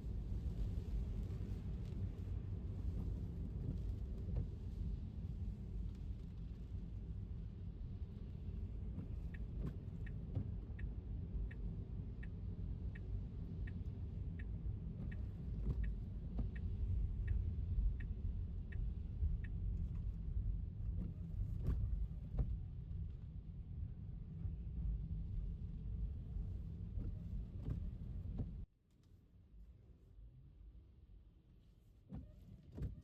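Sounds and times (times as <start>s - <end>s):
road rumble inside car: 0.0s - 33.0s
turn signal ticking: 9.2s - 20.1s.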